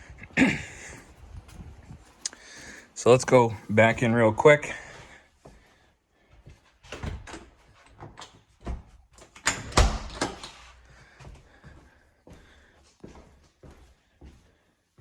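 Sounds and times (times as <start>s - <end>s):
door clunks and rattle: 6.9s - 10.6s.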